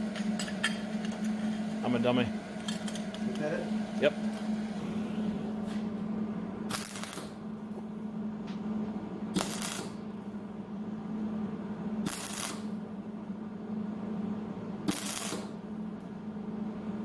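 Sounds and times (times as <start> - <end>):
steady electrical hum: 0.0 - 17.0
welding crackling bursts: 6.7 - 7.4, 9.4 - 10.0, 12.1 - 12.7, 14.9 - 15.5.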